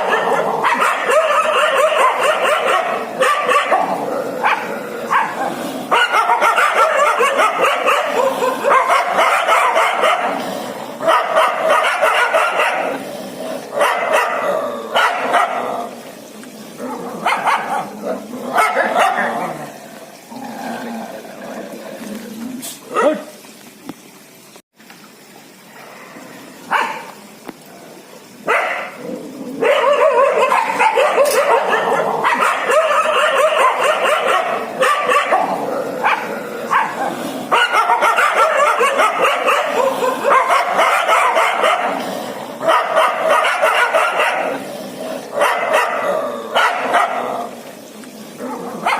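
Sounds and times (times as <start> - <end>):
dog barking and yipping: 0.0 - 10.4, 11.0 - 13.0, 13.8 - 15.7, 17.2 - 17.9, 18.5 - 19.6, 26.7 - 27.1, 28.4 - 29.0, 29.6 - 42.0, 42.6 - 44.6, 45.4 - 47.5.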